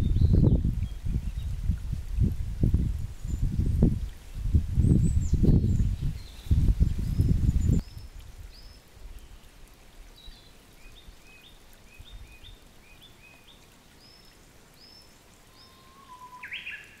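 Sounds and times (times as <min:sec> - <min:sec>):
small birds calling: 0:10.1 - 0:17.0.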